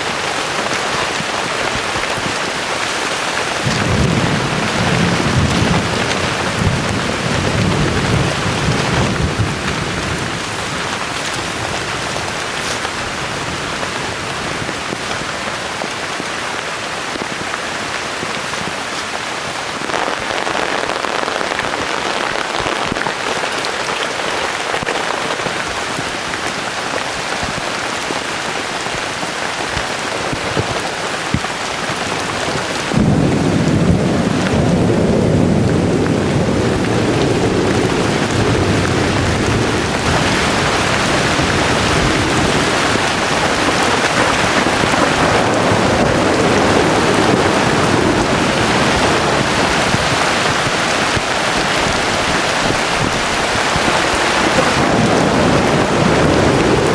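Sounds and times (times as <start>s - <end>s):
heavy rain pouring: 0.0s - 56.9s
low rumbling thunder: 3.6s - 15.0s, 32.8s - 56.9s.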